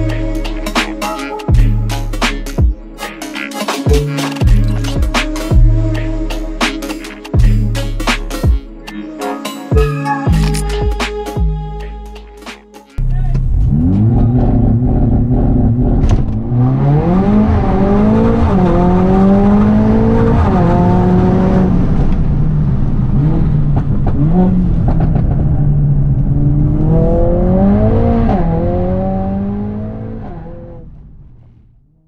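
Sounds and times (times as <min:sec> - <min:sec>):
car engine accelerating hard: 0:13.4 - 0:31.4.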